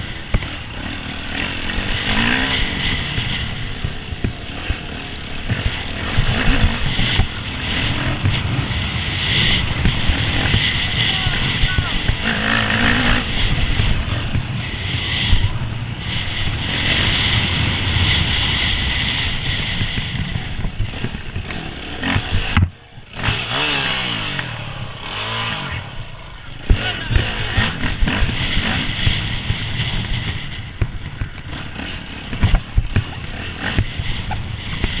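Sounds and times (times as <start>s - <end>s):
motorcycle engine revving: 0.0s - 35.0s
motorcycle clattering over rough ground: 26.6s - 35.0s.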